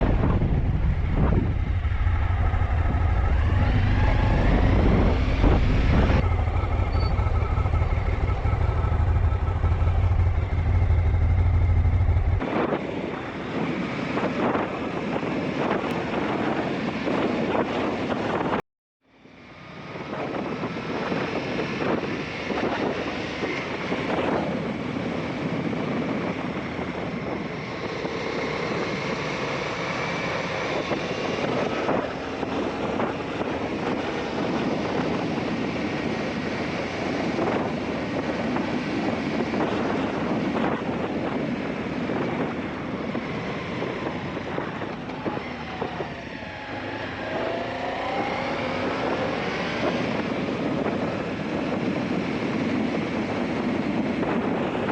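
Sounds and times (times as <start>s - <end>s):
motorcycle engine running: 0.0s - 12.7s
wind noise on microphone: 0.0s - 18.6s, 19.3s - 54.9s.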